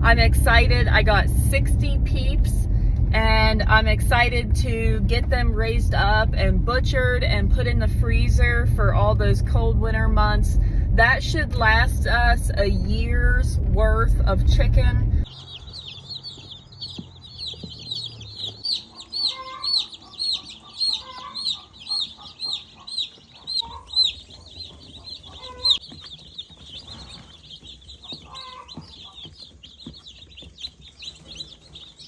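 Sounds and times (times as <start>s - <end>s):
chicks peeping: 12.6s - 32.0s.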